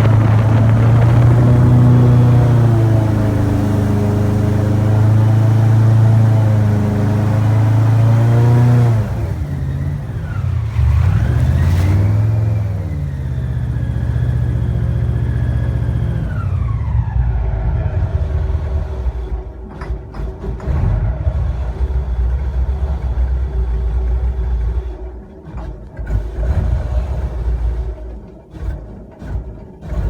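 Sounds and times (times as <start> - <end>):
airboat engine and propeller: 0.0 - 30.0.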